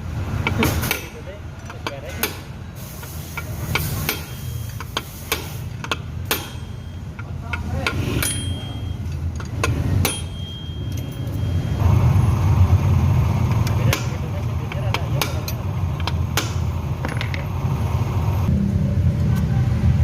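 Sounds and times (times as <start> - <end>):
hand tools clicking and knocking: 0.4 - 11.7, 13.5 - 17.5
steady low rumble: 1.2 - 20.0.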